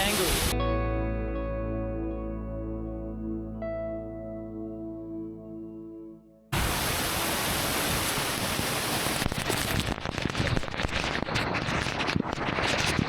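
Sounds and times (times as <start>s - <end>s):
waterfall rushing and splashing: 0.0s - 0.5s, 6.6s - 10.3s.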